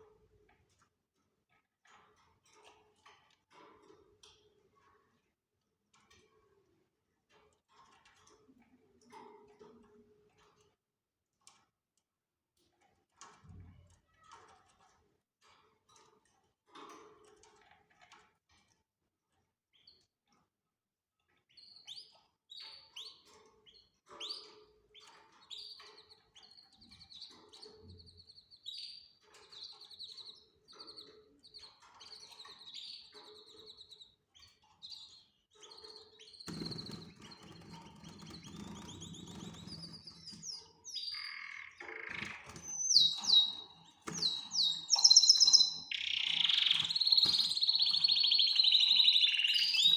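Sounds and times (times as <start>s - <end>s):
canaries chirping and trilling: 24.2s - 49.9s.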